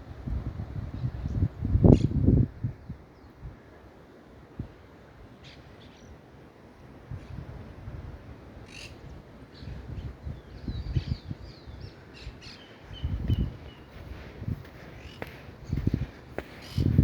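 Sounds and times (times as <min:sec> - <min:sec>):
wind rumbling on microphone: 0:00.0 - 0:03.7, 0:07.0 - 0:17.0
birds chirping: 0:10.4 - 0:17.0.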